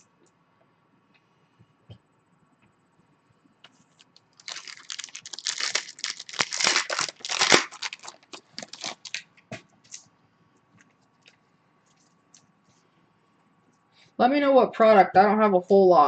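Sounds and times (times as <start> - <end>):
foil wrapper tearing and crinkling: 4.4 - 9.2.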